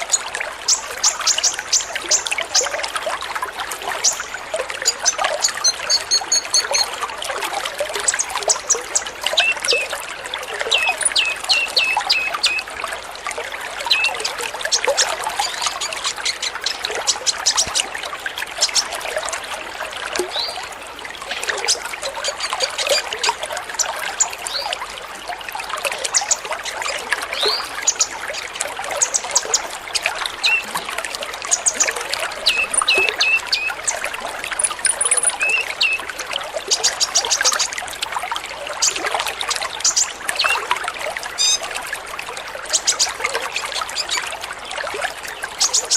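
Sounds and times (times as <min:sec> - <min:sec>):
water trickling: 0:00.0 - 0:45.9
sunbirds chirping and twittering: 0:04.0 - 0:06.9, 0:08.1 - 0:09.9, 0:10.7 - 0:12.6, 0:27.3 - 0:30.7, 0:31.5 - 0:36.0, 0:39.6 - 0:40.7, 0:41.4 - 0:41.7, 0:45.4 - 0:45.9.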